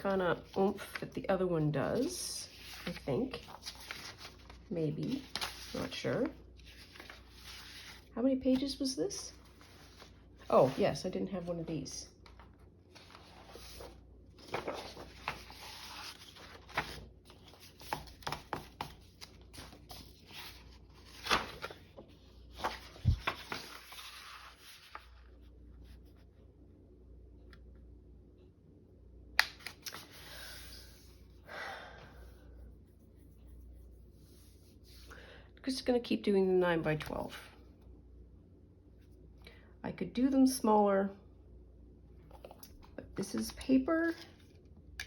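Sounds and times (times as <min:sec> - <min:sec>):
paper rustling: 0:01.9 - 0:25.4.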